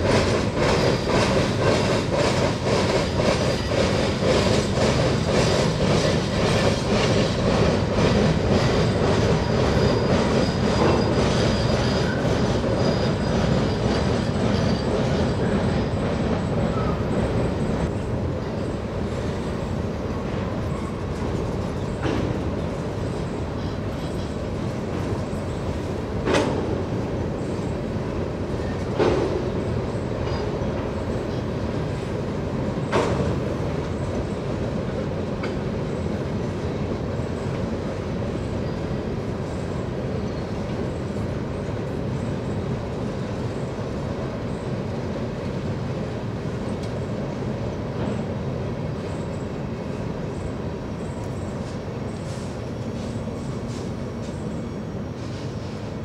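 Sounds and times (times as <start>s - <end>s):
sharp knocks from train wheels: 0.0s - 18.6s, 20.1s - 27.8s, 28.6s - 34.4s, 35.2s - 36.6s
freight train rumbling by: 0.0s - 56.0s.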